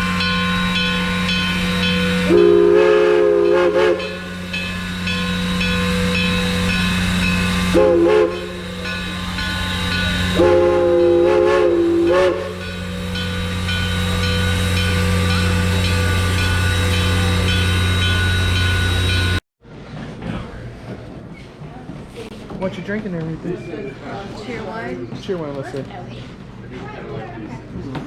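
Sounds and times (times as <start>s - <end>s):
steam locomotive whistle blasts: 0.0s - 19.4s.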